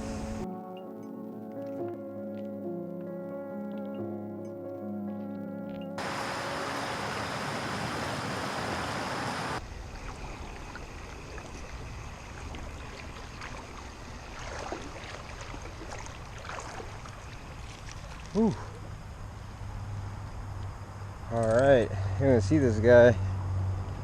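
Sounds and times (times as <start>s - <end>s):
creek water rushing: 6.0s - 19.1s
faint ticks and splashes: 9.6s - 21.8s.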